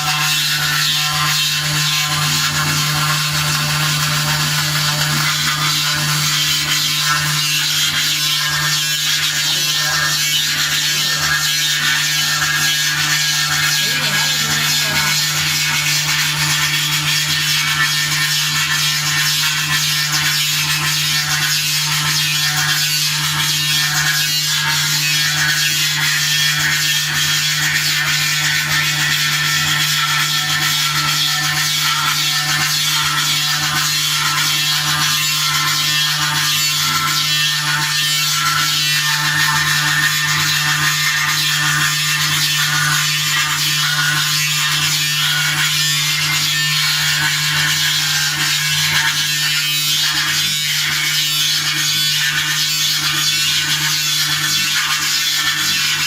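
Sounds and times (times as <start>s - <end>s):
engraving machine hum and hiss: 0.0s - 56.0s.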